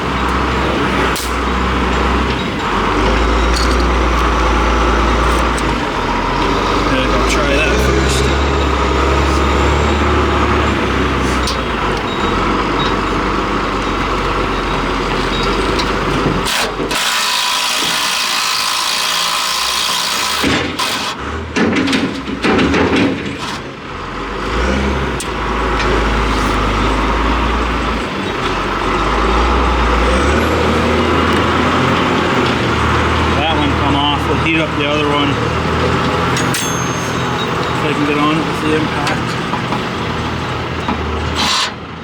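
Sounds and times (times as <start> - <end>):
engine droning: 0.0 - 42.0
metal clanks and knocks: 0.1 - 6.6, 20.3 - 23.8, 34.4 - 41.8.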